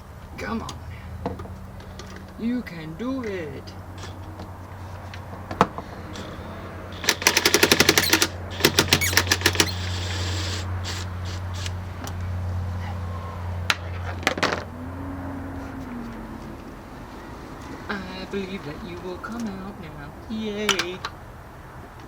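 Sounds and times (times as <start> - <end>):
ratchet clicking rapidly: 6.1 - 11.8.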